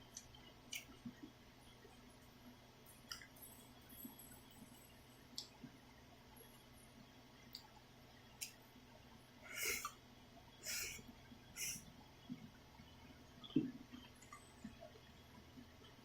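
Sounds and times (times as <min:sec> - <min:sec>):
person eating noodles: 0:09.5 - 0:09.9, 0:10.6 - 0:11.0, 0:11.6 - 0:11.8.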